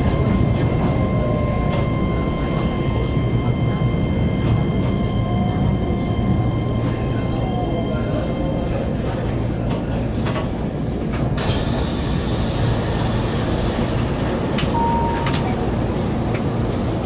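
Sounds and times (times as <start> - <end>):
electric train humming: 0.0 - 17.0
short beep: 14.8 - 15.4.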